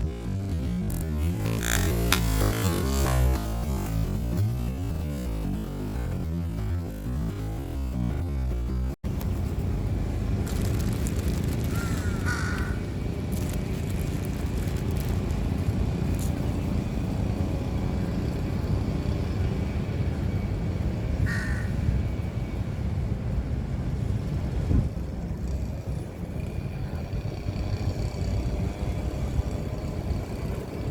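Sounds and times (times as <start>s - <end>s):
steady low rumble: 0.0s - 19.6s.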